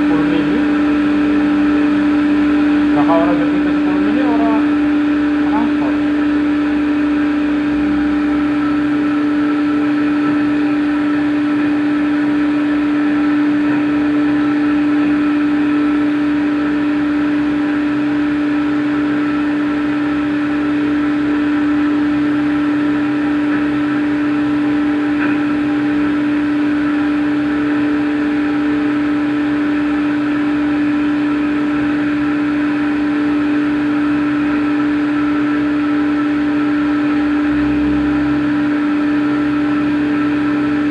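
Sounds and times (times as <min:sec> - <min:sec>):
cnc machine whining: 0:00.0 - 0:40.9.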